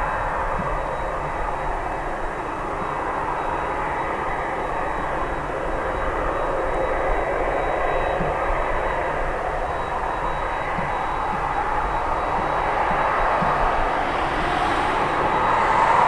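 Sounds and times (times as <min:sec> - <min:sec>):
faint thin engine whine: 0:00.0 - 0:16.0
jet engines running: 0:07.2 - 0:16.0.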